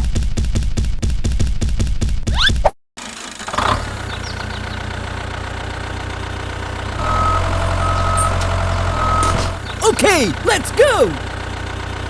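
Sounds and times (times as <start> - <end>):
small tractor engine idling: 4.4 - 12.0
reversing beeper: 7.0 - 9.6.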